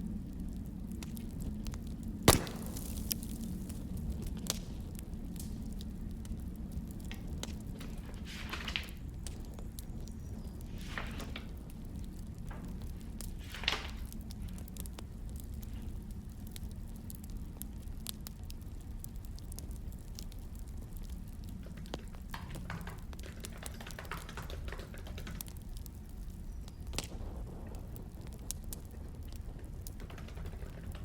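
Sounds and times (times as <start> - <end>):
steady low rumble: 0.0 - 8.3
wood fire crackling: 0.0 - 31.0.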